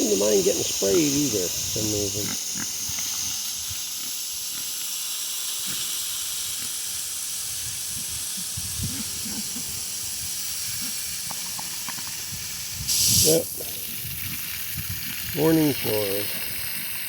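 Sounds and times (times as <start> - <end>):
pigs grunting: 0.0 - 4.8, 5.6 - 6.9, 8.2 - 11.2
garden hose spraying water: 0.0 - 17.0.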